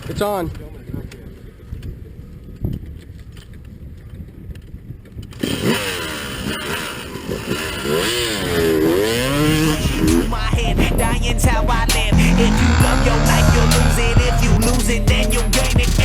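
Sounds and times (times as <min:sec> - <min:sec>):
dirt bike engine revving: 0:05.3 - 0:16.0.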